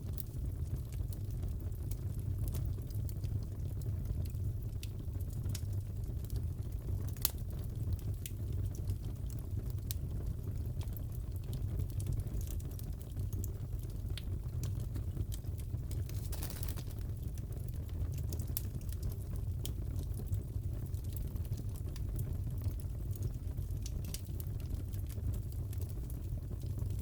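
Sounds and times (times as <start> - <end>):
fireplace crackling: 6.3 - 10.0, 10.6 - 26.9.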